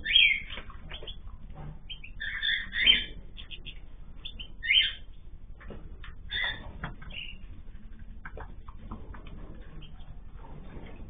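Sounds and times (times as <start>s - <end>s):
cage birds chirping: 0.0s - 11.0s.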